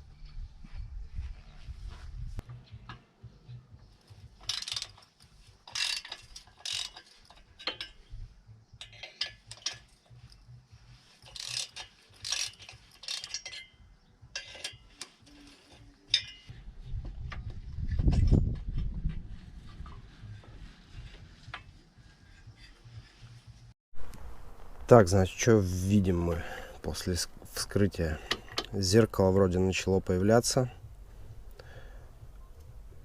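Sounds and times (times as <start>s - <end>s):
ratchet wrench clicking: 4.4s - 8.0s, 8.8s - 10.4s, 11.2s - 13.7s
low rumble: 24.0s - 25.7s.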